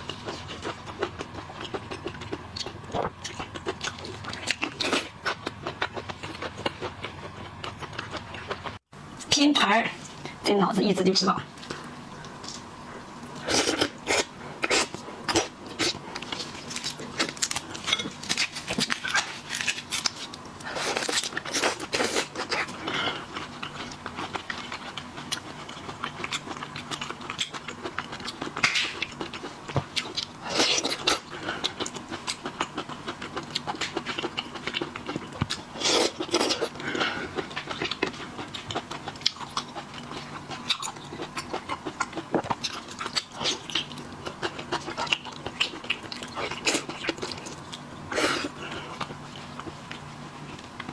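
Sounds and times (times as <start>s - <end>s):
wet chewing and smacking: 0.0s - 8.8s, 11.6s - 50.9s.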